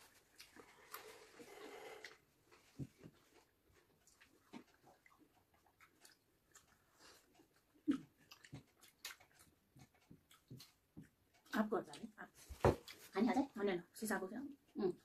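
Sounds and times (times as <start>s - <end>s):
people chewing food: 0.0s - 15.0s
mouth clicks and smacks: 4.1s - 12.2s.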